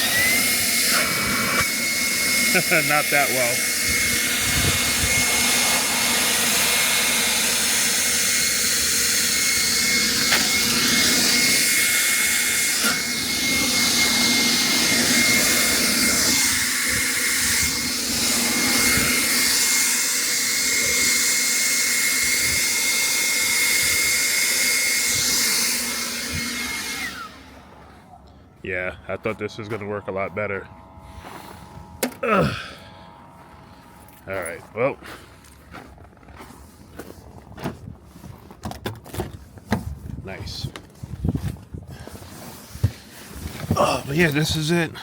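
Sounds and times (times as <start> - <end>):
leaf blower running: 0.0 - 36.5, 42.0 - 45.0.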